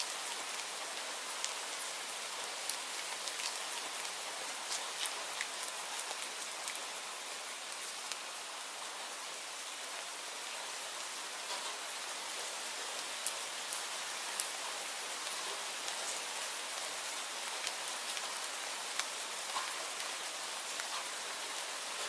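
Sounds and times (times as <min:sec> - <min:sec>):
steady rainfall hiss: 0:00.0 - 0:22.0
raindrop ticks: 0:02.6 - 0:06.9, 0:11.4 - 0:16.2, 0:16.8 - 0:22.0.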